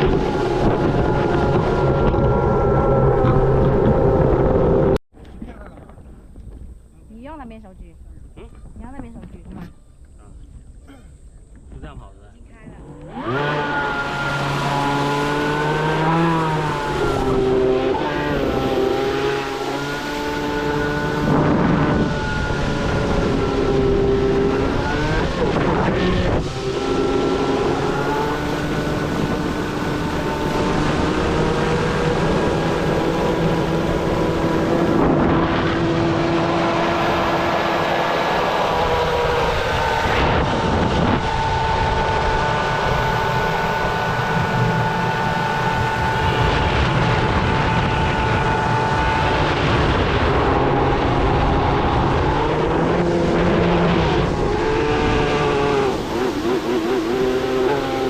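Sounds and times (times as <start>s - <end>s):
electric boat motor whine: 0.0s - 5.0s, 12.3s - 58.0s
wind: 0.0s - 58.0s
water rushing: 13.0s - 58.0s.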